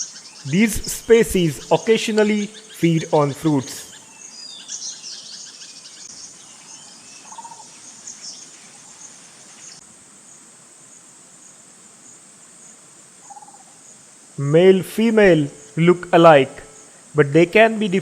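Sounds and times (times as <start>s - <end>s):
bird chirps: 0.0s - 9.8s.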